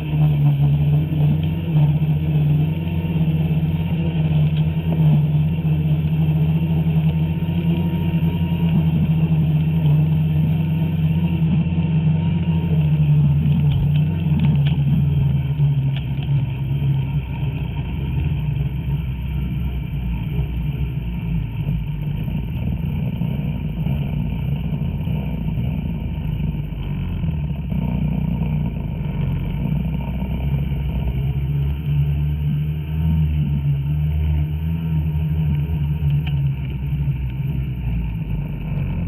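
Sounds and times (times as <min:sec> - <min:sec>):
snowmobile engine running: 0:00.0 - 0:39.0.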